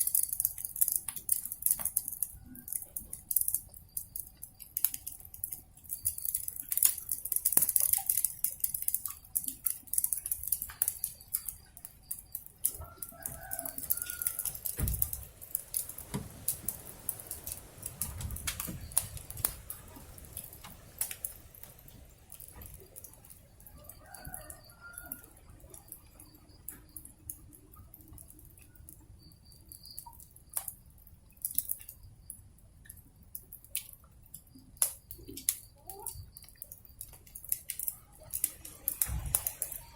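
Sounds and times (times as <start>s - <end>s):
wood fire crackling and popping: 0.0s - 39.9s
rooster crowing: 12.7s - 14.8s, 23.6s - 25.5s.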